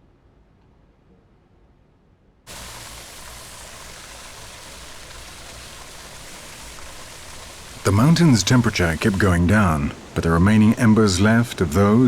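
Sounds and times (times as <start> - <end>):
steady rushing hiss: 2.5 - 11.3.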